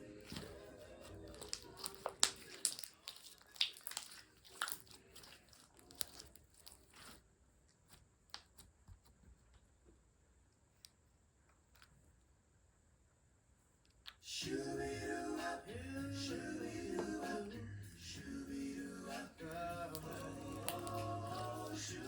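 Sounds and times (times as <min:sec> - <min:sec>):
crunchy slime squeezed by hand: 0:01.3 - 0:07.2.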